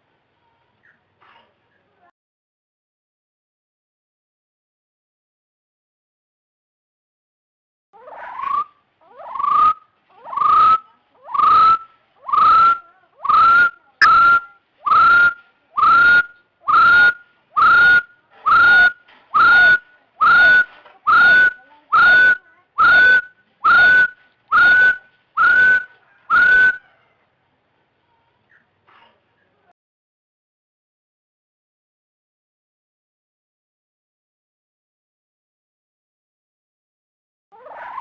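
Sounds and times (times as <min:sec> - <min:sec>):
partridge rising whistles: 0:09.4 - 0:27.0.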